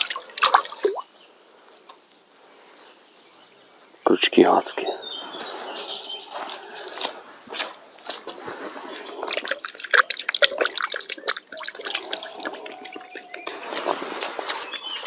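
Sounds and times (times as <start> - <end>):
water splashing and dripping: 0.0 - 1.1, 6.3 - 15.0.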